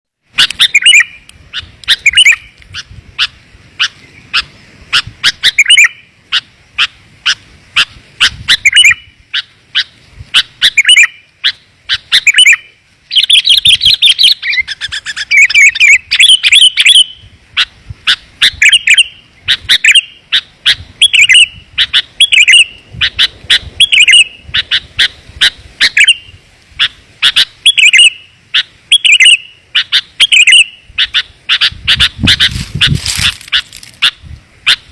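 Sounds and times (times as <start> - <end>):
bird chip notes and chatter: 0.4 - 34.9.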